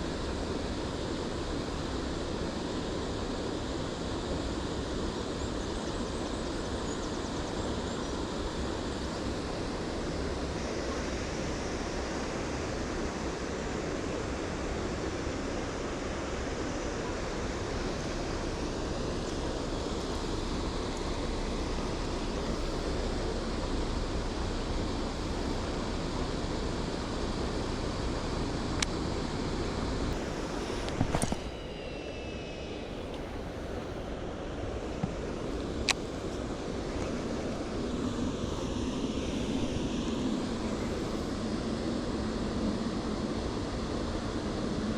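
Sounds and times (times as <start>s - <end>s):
rushing wind: 0.0s - 44.9s
high falling whine: 15.7s - 44.9s.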